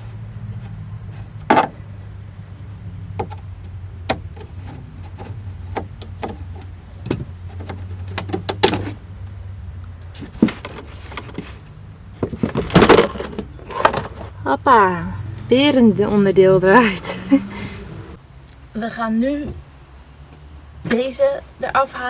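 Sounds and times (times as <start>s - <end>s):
plastic parts clicking and knocking: 0.0s - 14.4s
steady low hum: 0.0s - 21.6s.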